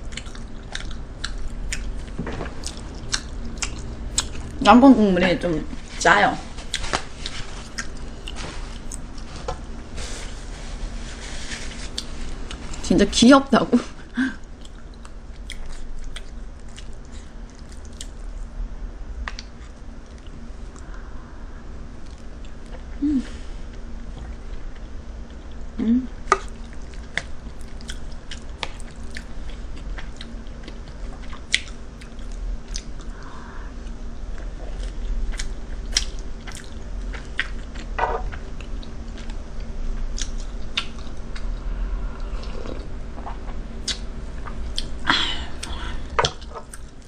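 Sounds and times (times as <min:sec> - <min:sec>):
person chewing food: 0:00.0 - 0:04.7, 0:06.6 - 0:09.8, 0:14.4 - 0:18.5, 0:22.0 - 0:22.9, 0:23.7 - 0:47.0
steady low hum: 0:00.0 - 0:47.0
person humming: 0:23.0 - 0:23.5, 0:25.8 - 0:26.2.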